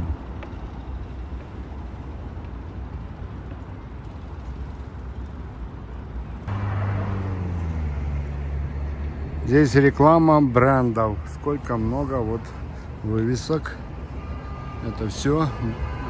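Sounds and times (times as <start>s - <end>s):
rumble of passing vehicles: 0.0s - 16.0s
loud engine hum: 6.5s - 10.1s.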